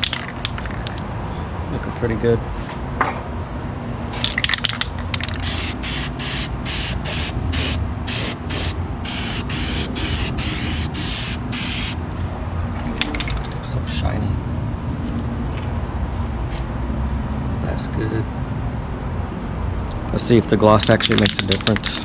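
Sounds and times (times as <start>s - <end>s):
spray paint can hissing: 5.4s - 12.0s.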